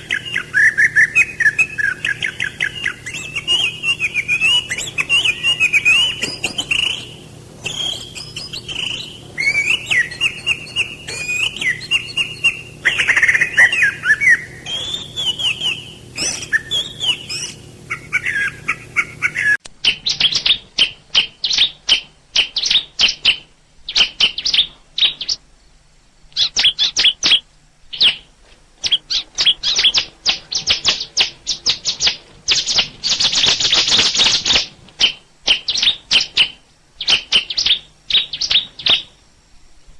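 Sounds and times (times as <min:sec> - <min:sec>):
faint low hum: 0:00.0 - 0:19.6
songbirds warbling: 0:00.0 - 0:19.6
rapid sharp bird chirps: 0:00.0 - 0:20.4.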